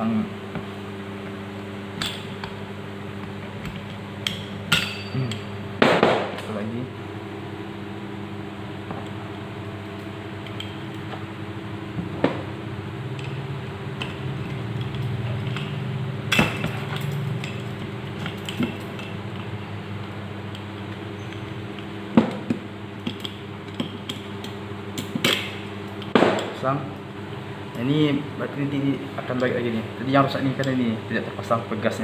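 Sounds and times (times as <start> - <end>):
steady background hum: 0.0 - 32.0.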